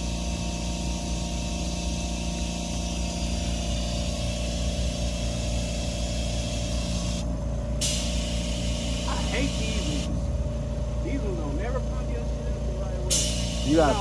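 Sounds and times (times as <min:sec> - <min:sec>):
air compressor humming: 0:00.0 - 0:14.0
air hissing: 0:02.7 - 0:10.1, 0:13.1 - 0:14.0.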